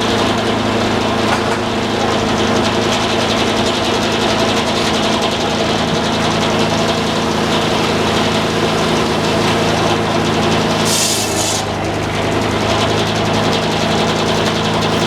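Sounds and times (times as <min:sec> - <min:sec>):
sawmill engine running: 0:00.0 - 0:15.0.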